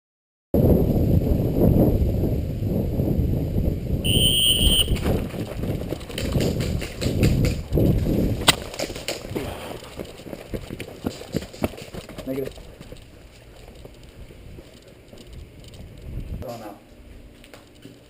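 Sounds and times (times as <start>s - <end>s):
short high beep: 4.1s - 5.0s.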